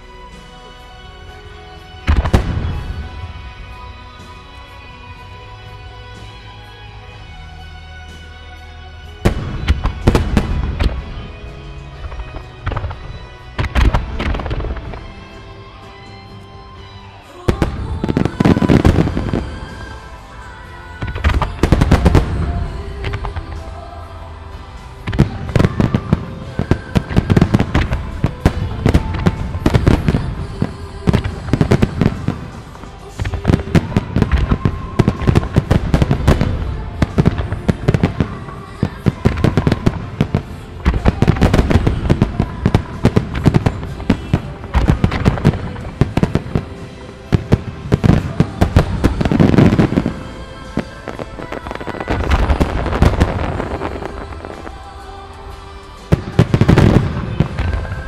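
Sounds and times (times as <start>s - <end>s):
music: 0.0s - 58.0s
fireworks launching and bursting: 1.2s - 5.4s, 9.1s - 58.0s.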